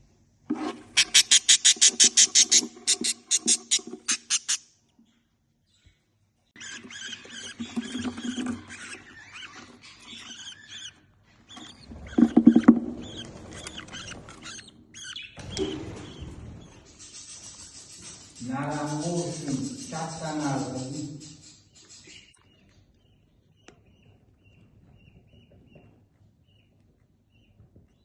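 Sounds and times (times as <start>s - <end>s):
budgerigar chattering: 1.0s - 4.6s.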